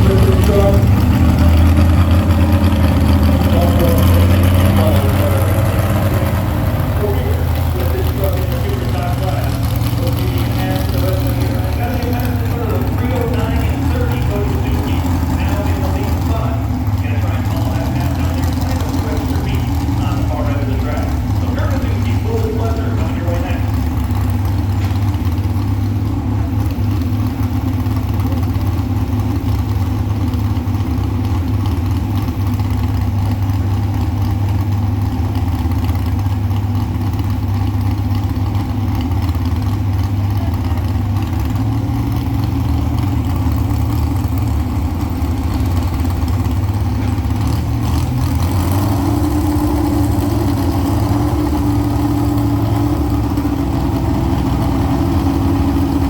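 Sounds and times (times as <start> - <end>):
truck engine running loudly: 0.0 - 56.0.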